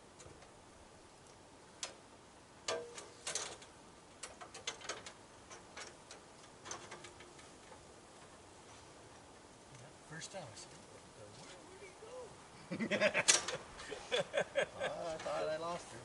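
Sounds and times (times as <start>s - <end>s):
faint steady hiss: 0.0s - 16.0s
sharp clicks and knocks: 1.2s - 2.0s, 2.6s - 8.4s.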